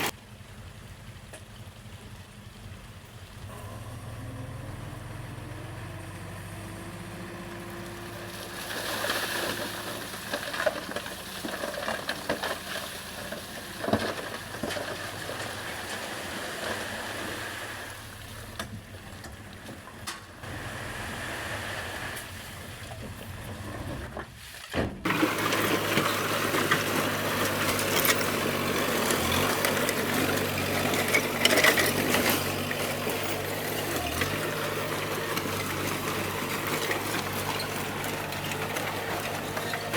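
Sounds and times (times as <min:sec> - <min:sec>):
bulldozer diesel engine running: 0:03.2 - 0:24.2, 0:25.0 - 0:39.9
blade and tracks clanking on stone: 0:08.6 - 0:16.8, 0:23.7 - 0:39.9.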